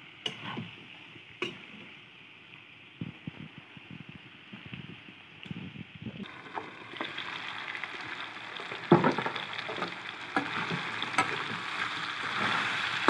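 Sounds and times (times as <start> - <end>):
food sizzling in a wok: 6.2 - 13.0.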